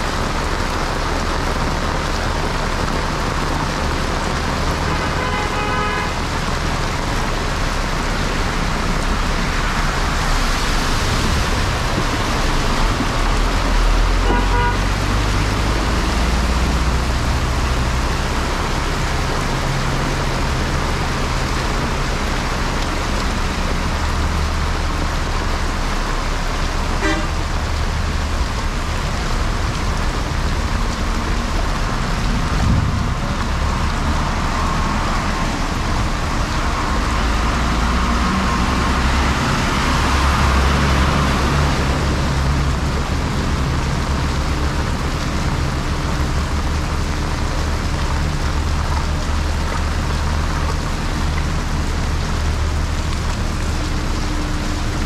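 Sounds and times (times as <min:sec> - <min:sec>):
heavy rain on a road: 0:00.0 - 0:55.0
vehicle horns honking: 0:04.9 - 0:06.1, 0:14.2 - 0:14.9, 0:27.0 - 0:27.4.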